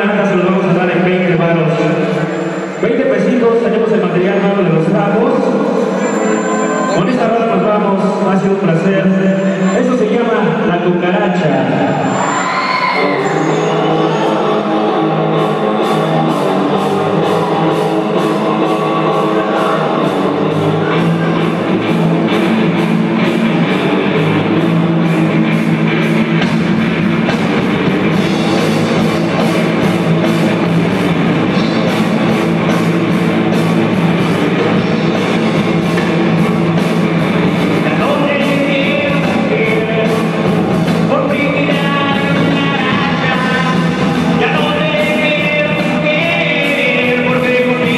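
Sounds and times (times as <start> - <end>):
distorted electric guitar: 0.0 - 47.9
person singing: 12.2 - 21.5, 37.8 - 47.9
drum kit beat: 14.3 - 47.9.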